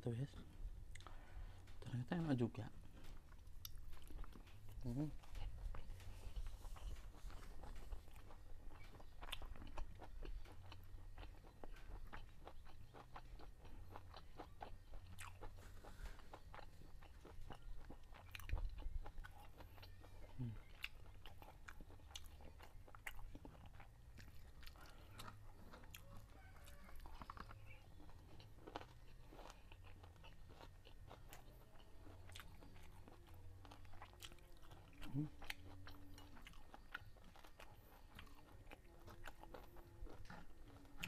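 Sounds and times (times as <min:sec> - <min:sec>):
man chewing food: 0:00.1 - 0:41.0.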